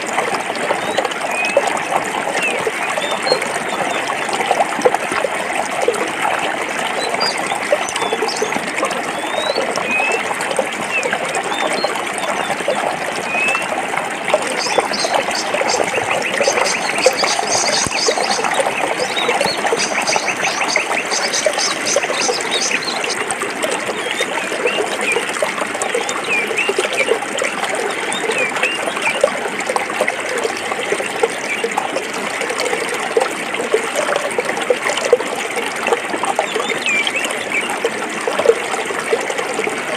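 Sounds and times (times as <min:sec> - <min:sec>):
stream flowing over rocks: 0:00.0 - 0:39.9
small birds chirping: 0:14.4 - 0:23.3.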